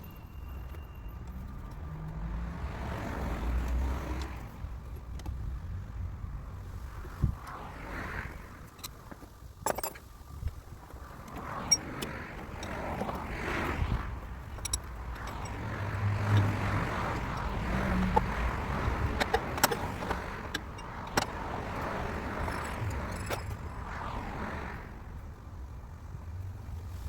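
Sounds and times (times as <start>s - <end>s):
sharp clicks and knocks: 14.3s - 23.7s.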